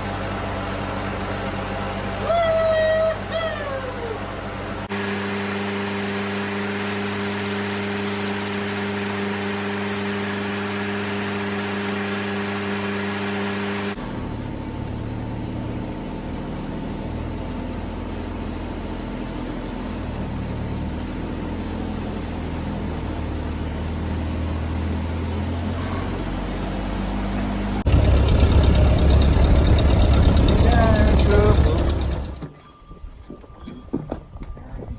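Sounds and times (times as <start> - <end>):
tractor engine running: 13.9 - 32.5.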